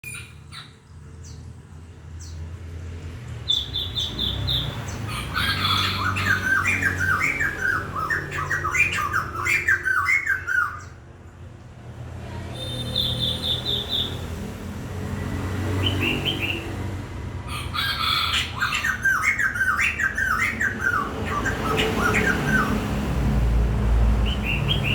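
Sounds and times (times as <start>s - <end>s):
bird singing: 0.0s - 1.6s, 3.4s - 11.0s, 12.6s - 14.3s, 17.5s - 23.0s, 24.2s - 24.9s.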